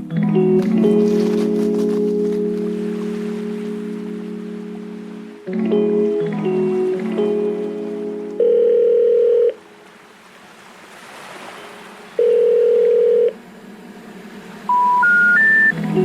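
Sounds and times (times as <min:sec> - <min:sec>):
long telephone beeps: 0:08.4 - 0:09.6, 0:12.2 - 0:13.3, 0:14.7 - 0:15.7
rising three-tone telephone signal: 0:08.4 - 0:09.6, 0:12.2 - 0:13.4, 0:14.7 - 0:15.8.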